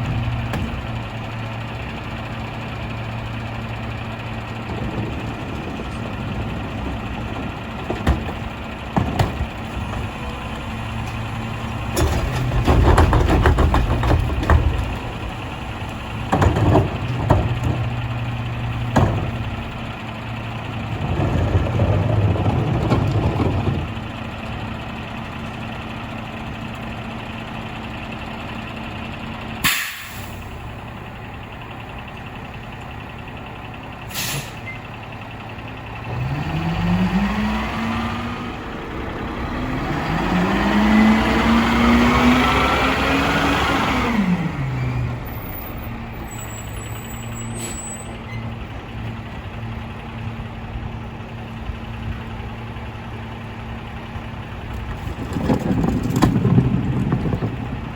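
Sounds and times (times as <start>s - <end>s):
garbage truck diesel engine idling: 0.0s - 37.0s, 37.9s - 57.9s
metallic clanks and bangs: 3.6s - 24.3s
short sharp air hisses: 29.6s - 30.3s, 34.1s - 34.6s.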